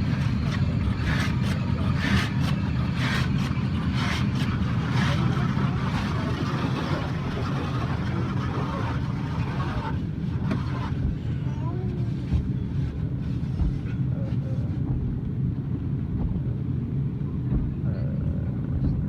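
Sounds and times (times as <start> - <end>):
car wash low rumble: 0.0 - 19.0
water spray swishing against car: 2.0 - 14.8.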